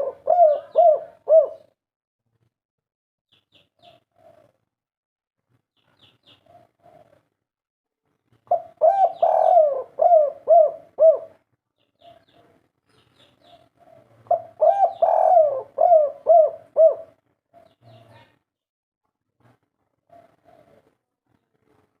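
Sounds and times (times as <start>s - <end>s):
dove cooing: 0.0s - 1.8s, 3.8s - 4.6s, 6.4s - 7.3s, 8.5s - 11.4s, 13.4s - 18.4s, 20.1s - 21.0s.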